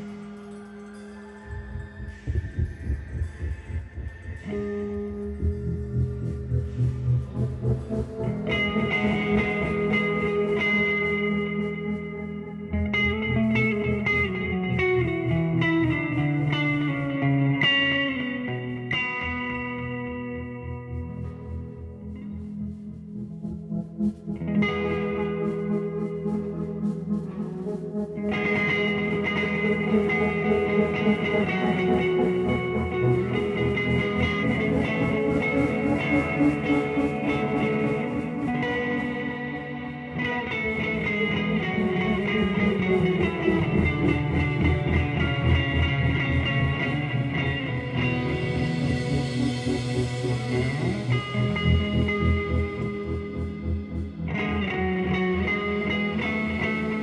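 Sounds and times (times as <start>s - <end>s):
electric guitar picking notes: 0.0s - 57.0s
drums: 1.5s - 12.2s, 23.4s - 54.2s.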